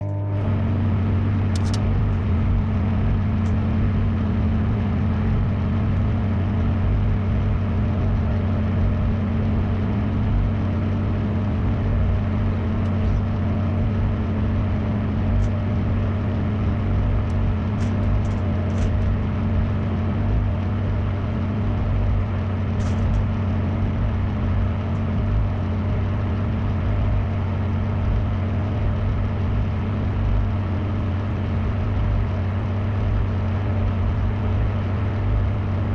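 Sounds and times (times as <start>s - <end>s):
microwave oven humming: 0.0s - 35.9s.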